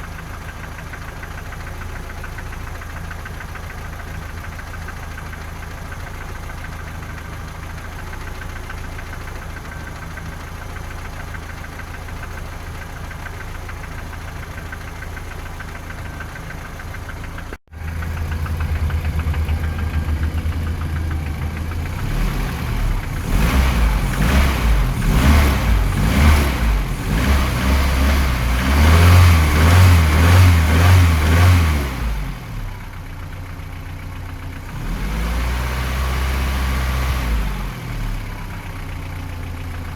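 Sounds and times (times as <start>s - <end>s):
car engine idling with a knock: 0.0s - 23.2s
engine revving: 17.8s - 32.9s, 34.6s - 38.6s.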